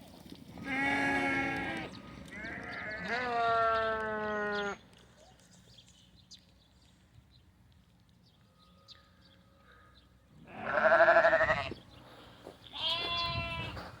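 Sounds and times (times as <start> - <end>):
sheep bleating: 0.6 - 4.8, 10.4 - 11.8, 12.7 - 13.8.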